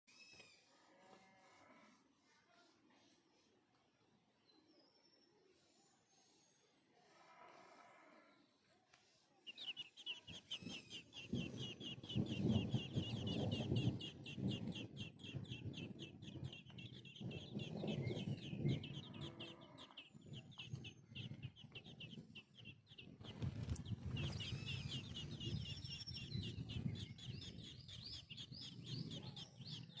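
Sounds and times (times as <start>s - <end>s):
baby birds chirping: 9.4s - 30.0s.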